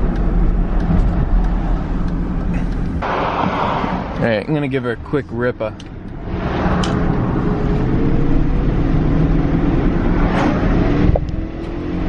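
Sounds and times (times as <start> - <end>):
car engine accelerating: 5.8 - 12.0.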